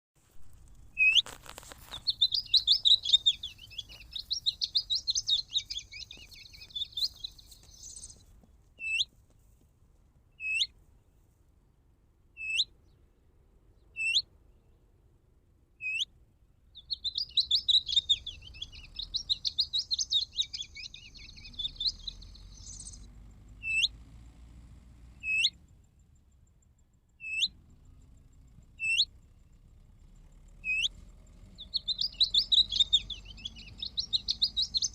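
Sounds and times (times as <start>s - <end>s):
electronic bird caller song: 0.9s - 8.2s, 16.8s - 23.9s, 25.2s - 25.6s, 27.2s - 27.6s, 28.8s - 29.1s, 30.7s - 30.9s, 31.6s - 34.9s.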